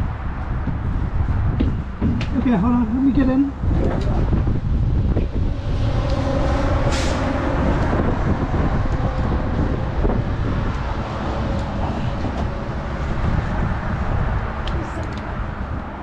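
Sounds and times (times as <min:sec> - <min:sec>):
large vehicle engine running: 0:03.6 - 0:16.0.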